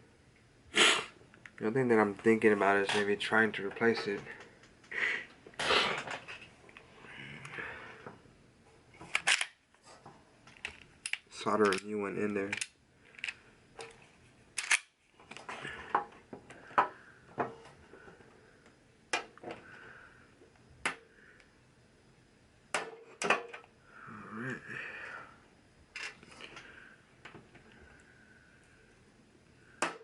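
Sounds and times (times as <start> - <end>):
plastic and metal parts clicking: 12.5 - 14.0.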